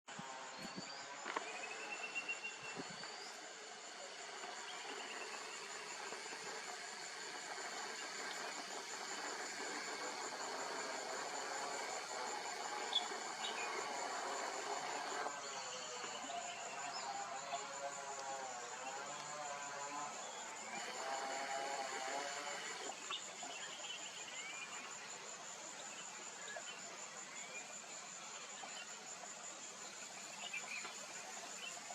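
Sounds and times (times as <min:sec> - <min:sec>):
high insect trill: 0:00.1 - 0:31.9.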